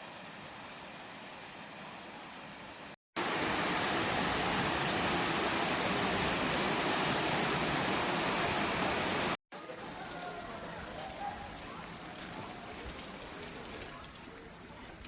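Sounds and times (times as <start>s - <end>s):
waterfall rushing: 3.2s - 12.7s.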